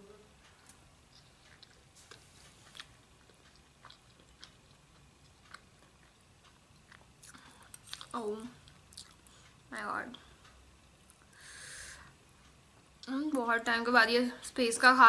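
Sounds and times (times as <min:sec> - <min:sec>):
faint chewing with mouth clicks: 0:00.4 - 0:11.8.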